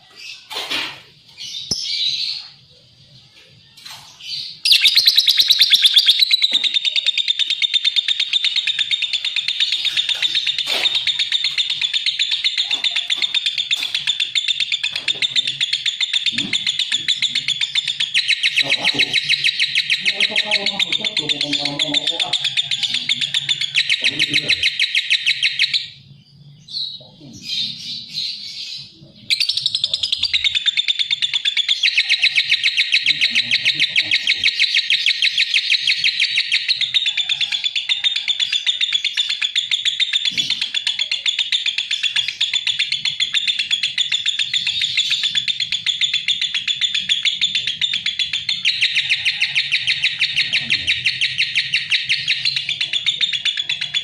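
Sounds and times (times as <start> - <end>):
bird chattering in shrill chirps: 3.8 - 54.0.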